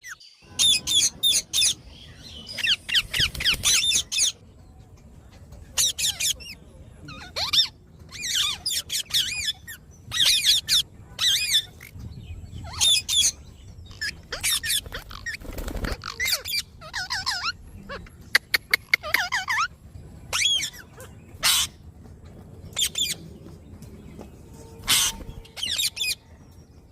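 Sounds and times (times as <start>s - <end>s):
parrot harsh high calls: 16.1s - 18.1s, 20.3s - 21.8s, 24.9s - 26.2s.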